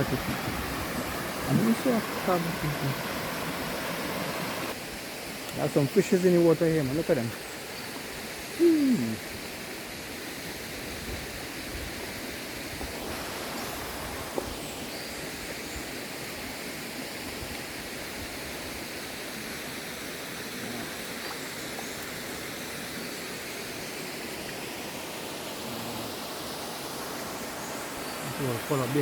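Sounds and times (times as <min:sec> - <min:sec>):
waterfall rushing: 0:00.0 - 0:10.4, 0:19.3 - 0:29.0
short vocal sound: 0:08.5 - 0:09.2.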